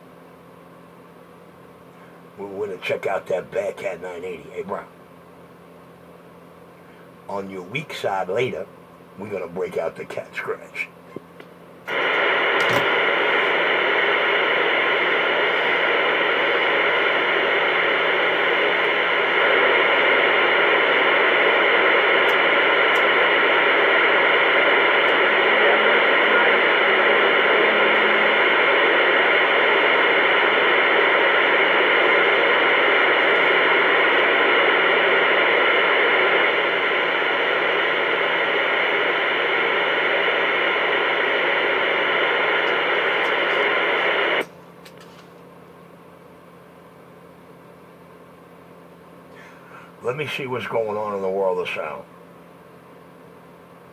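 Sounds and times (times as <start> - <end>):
radio static hiss: 1.8 - 5.1, 6.8 - 45.5, 46.9 - 53.9.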